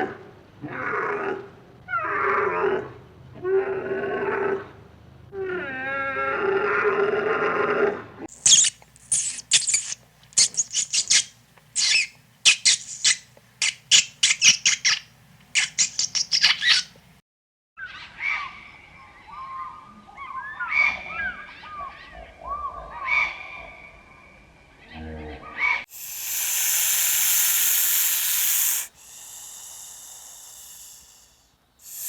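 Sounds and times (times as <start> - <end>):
sharp high squeaks: 8.3 - 14.9
short chirping calls: 8.3 - 17.0, 25.9 - 32.0.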